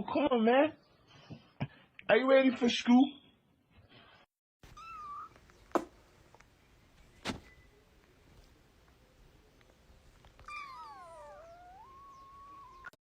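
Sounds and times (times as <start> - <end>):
cat meowing: 4.7 - 5.4, 10.4 - 13.0.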